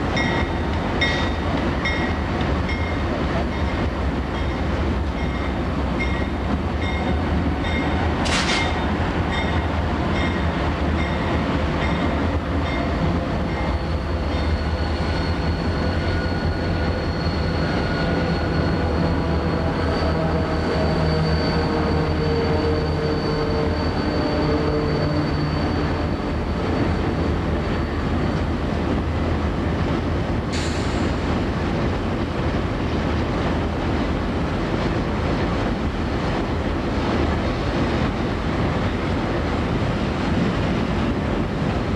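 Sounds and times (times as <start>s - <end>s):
freight train rumbling: 0.0s - 41.9s
high wheel squeal: 12.9s - 28.3s.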